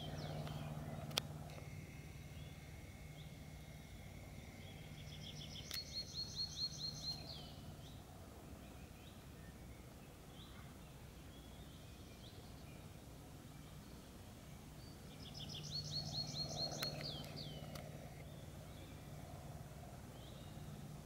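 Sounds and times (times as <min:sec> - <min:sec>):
songbird singing high notes: 0:00.0 - 0:08.0
faint low hum: 0:00.0 - 0:21.0.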